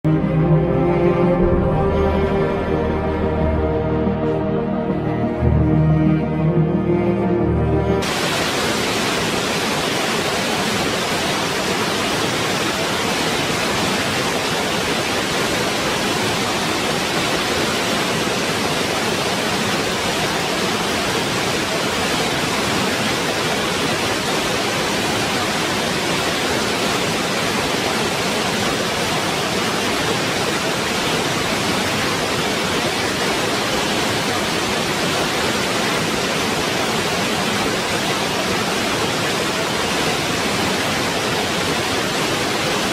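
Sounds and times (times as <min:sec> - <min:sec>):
waterfall rushing: 0:00.1 - 0:42.9.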